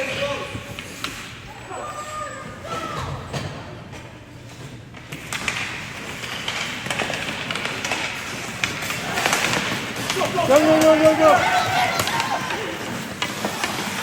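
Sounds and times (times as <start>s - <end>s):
sticks and puck clacking: 2.7s - 14.0s
skates scraping on ice: 4.6s - 14.0s.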